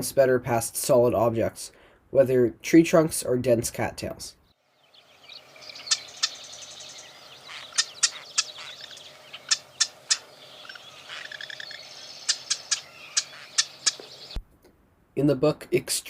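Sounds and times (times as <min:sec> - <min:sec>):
wren ticking calls: 0:04.7 - 0:14.4
faint chatter of other birds: 0:05.0 - 0:14.4
buzzy bird rattle: 0:07.5 - 0:10.4, 0:12.2 - 0:14.3.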